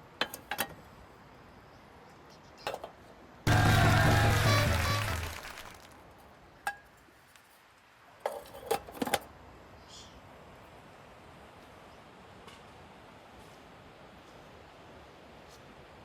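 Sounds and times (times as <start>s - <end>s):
camp cookware clinking: 0.0s - 0.8s, 6.7s - 7.0s, 8.2s - 9.3s
background music: 3.5s - 5.7s.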